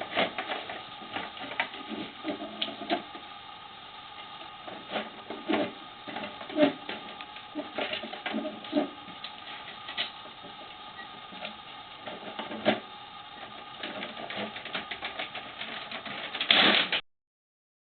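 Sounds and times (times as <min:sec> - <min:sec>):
loud plastic clatter: 0:00.0 - 0:03.2, 0:11.3 - 0:17.0
plastic toy truck clicking and rattling: 0:13.4 - 0:17.0.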